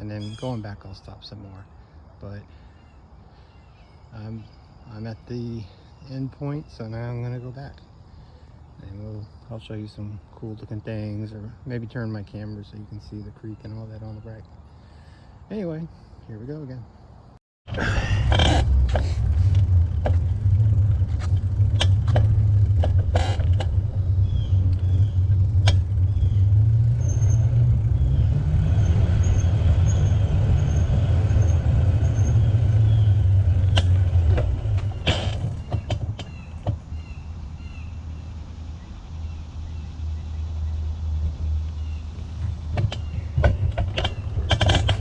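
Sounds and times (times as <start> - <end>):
bike clicks and knocks: 18.3 - 24.1, 24.7 - 26.0, 33.6 - 36.9, 42.2 - 45.0.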